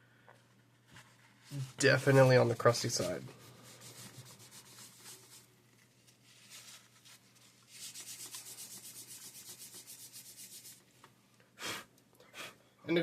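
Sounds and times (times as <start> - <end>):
faint rubbing strokes: 0.7 - 11.0.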